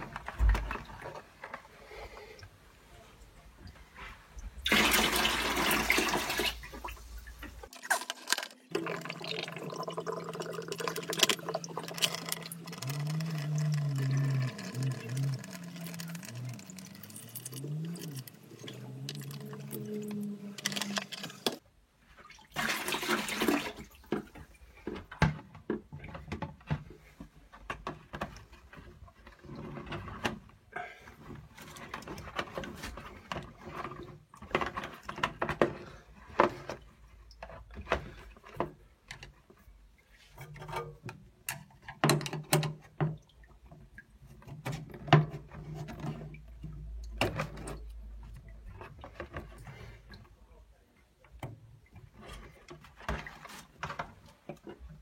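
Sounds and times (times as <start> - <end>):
water draining and gurgling: 4.4 - 21.6.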